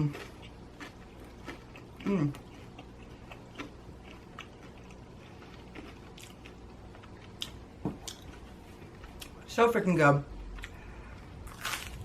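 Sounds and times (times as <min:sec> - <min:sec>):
person chewing crunchy crust: 0:00.0 - 0:09.4, 0:10.5 - 0:12.0
person humming mmm: 0:02.0 - 0:02.4.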